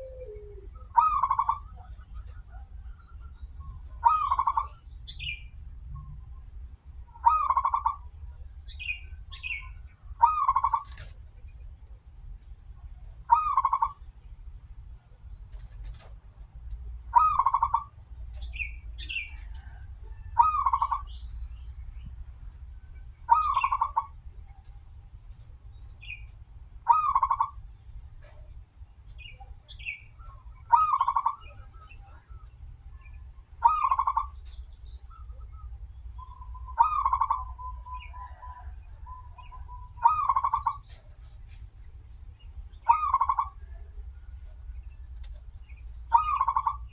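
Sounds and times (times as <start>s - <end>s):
dove cooing: 0.0s - 2.9s, 35.5s - 41.0s
low steady hum: 0.0s - 46.9s.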